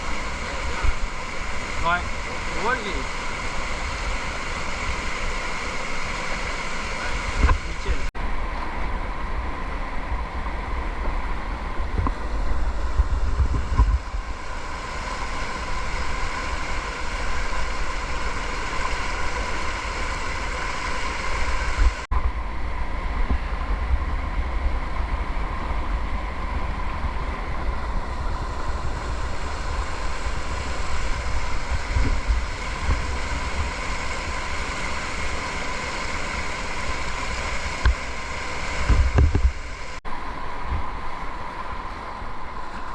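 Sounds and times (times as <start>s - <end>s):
whitewater rushing: 0.0s - 42.9s
wind buffeting microphone: 7.3s - 17.8s, 21.5s - 35.3s, 38.7s - 39.8s.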